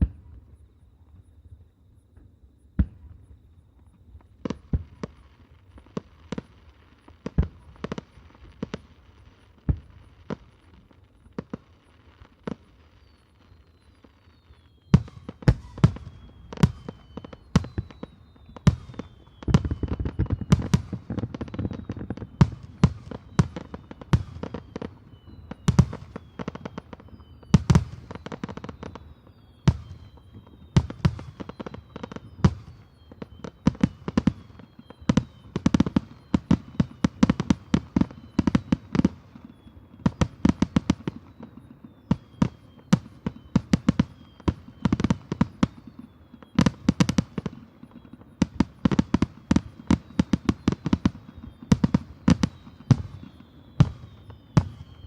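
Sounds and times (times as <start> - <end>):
high falling whistles: 0.0 - 55.0.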